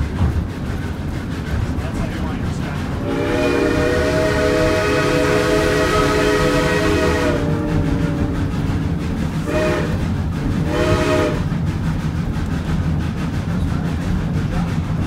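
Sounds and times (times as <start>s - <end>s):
low rumble of running train: 0.0s - 15.0s
steam locomotive whistle: 3.0s - 8.5s, 9.4s - 11.5s.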